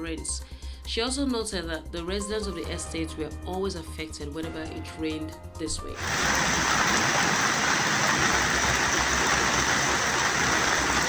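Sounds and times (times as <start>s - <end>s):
heavy rain and floodwater rushing: 6.0s - 11.0s.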